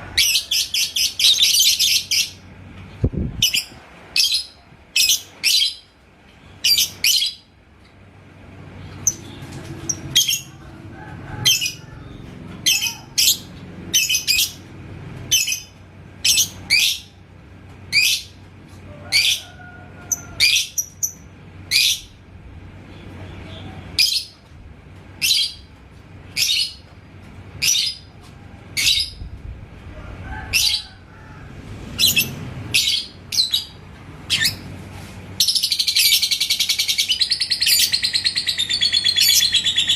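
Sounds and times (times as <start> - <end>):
bird chirping: 35.4 - 39.9.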